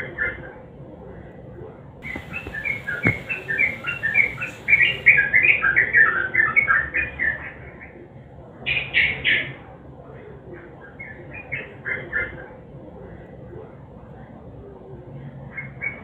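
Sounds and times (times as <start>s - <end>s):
bird chattering song: 2.0s - 5.4s.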